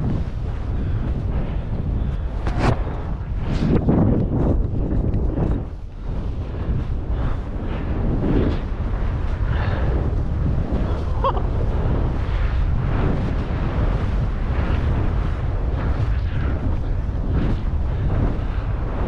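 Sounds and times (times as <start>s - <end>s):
wind rushing over microphone: 0.0s - 19.0s
snow hissing under snowboard: 6.0s - 19.0s.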